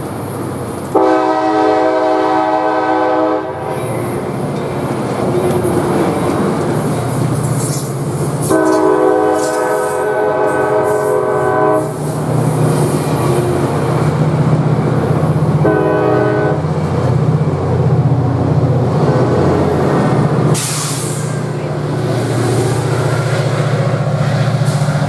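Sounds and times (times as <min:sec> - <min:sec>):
moving train noise: 0:00.0 - 0:25.0
locomotive horn blasts: 0:00.9 - 0:03.9, 0:08.4 - 0:12.0, 0:15.6 - 0:16.8.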